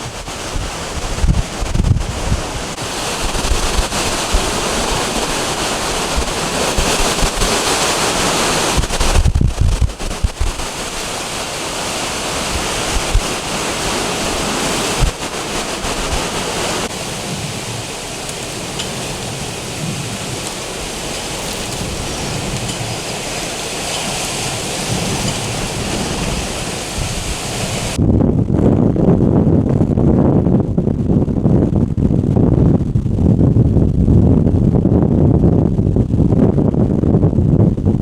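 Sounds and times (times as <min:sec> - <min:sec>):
waves breaking: 0:00.0 - 0:28.0
strong wind: 0:00.0 - 0:38.0
wind buffeting microphone: 0:00.0 - 0:38.0.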